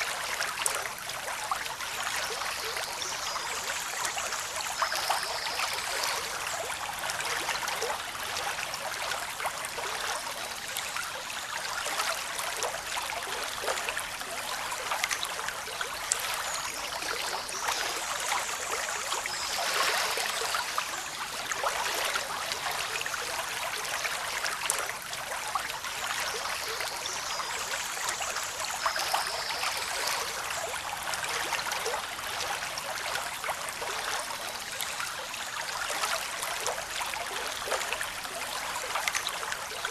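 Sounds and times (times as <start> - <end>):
water rushing and trickling: 0.0 - 39.9.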